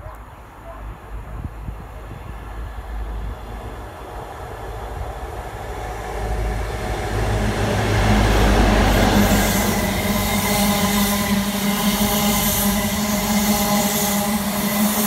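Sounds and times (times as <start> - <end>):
rail and wheel noise: 0.0 - 15.0
diesel engine hum: 2.0 - 13.4.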